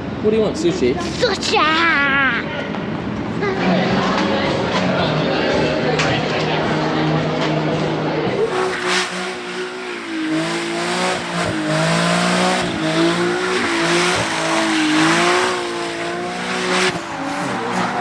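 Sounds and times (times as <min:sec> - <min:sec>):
car engine revving: 0:08.2 - 0:18.0
tyres squealing: 0:08.4 - 0:18.0.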